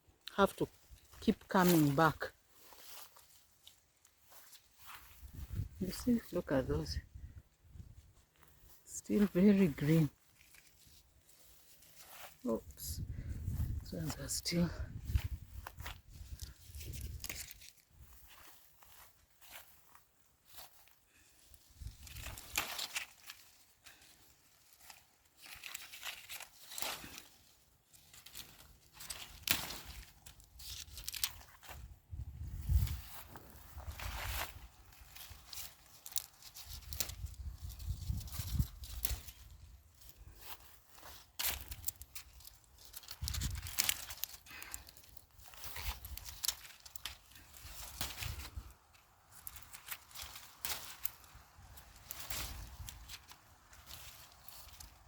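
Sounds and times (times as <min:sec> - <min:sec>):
dry leaves rustling and crackling: 0:00.3 - 0:55.0
plant stems snapping: 0:15.1 - 0:18.5, 0:21.8 - 0:31.8, 0:32.8 - 0:55.0.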